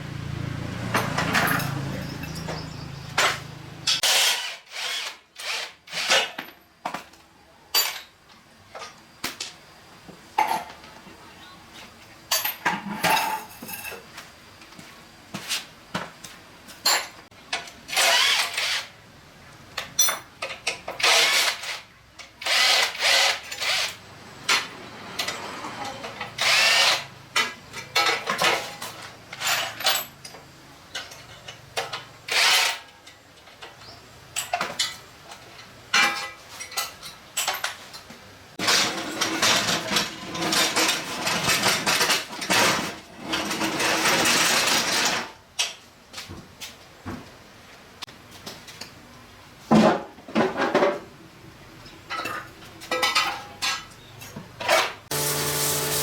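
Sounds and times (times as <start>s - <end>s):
power drill bursts: 4.0s - 6.3s, 17.9s - 18.9s, 22.4s - 24.0s, 26.4s - 27.1s, 55.1s - 56.0s.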